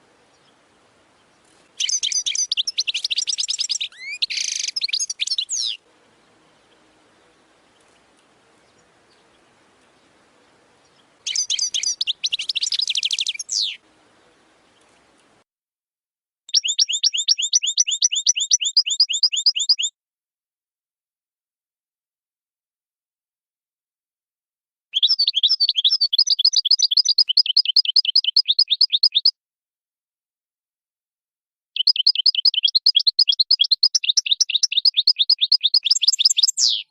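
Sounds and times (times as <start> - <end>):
faint hiss: 0.0 - 15.4
bird singing chirps and trill: 0.2 - 15.2, 16.5 - 19.9, 25.0 - 29.3, 31.8 - 36.9
goldfinch twittering: 1.8 - 5.8, 10.9 - 13.8, 16.5 - 19.9, 31.8 - 36.9.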